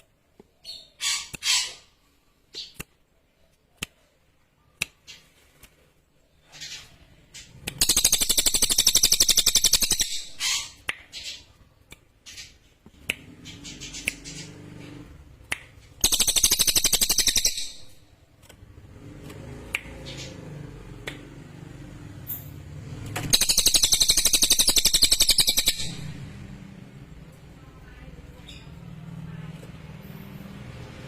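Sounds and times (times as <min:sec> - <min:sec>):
bird chirps and clicks: 0:00.0 - 0:21.5, 0:22.1 - 0:27.6
songbird trilling: 0:07.8 - 0:11.4, 0:16.0 - 0:18.0, 0:23.3 - 0:26.2.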